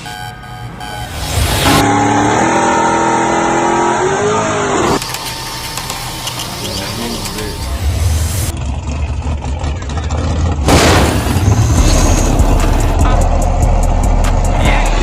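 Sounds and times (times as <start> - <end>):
car engine rumbling: 6.0 - 15.0.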